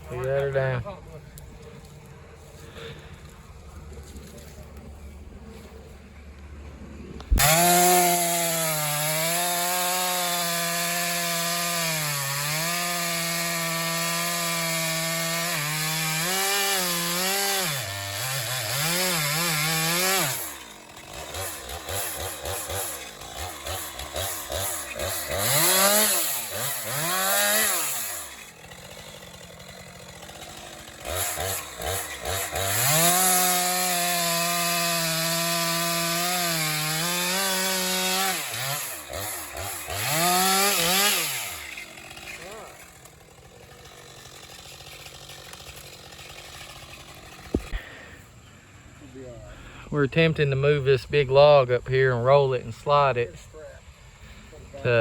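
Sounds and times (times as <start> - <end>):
chainsaw cutting wood: 6.3 - 49.0.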